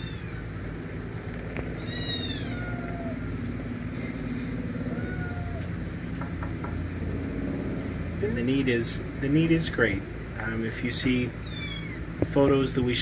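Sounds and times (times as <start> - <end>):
kitten mewing: 0.0 - 0.6, 1.4 - 5.8, 11.3 - 12.4
steady low hum: 0.0 - 13.0.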